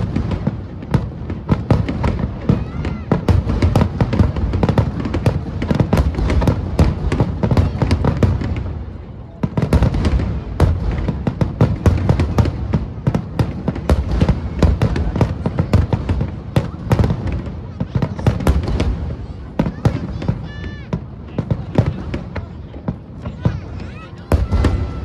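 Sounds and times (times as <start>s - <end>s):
fireworks booming and crackling: 0.0s - 25.0s.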